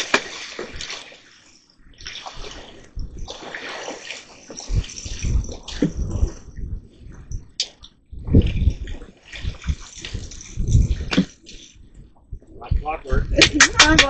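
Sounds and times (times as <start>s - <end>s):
fish thrashing and splashing water: 0.0s - 6.4s, 8.3s - 11.8s.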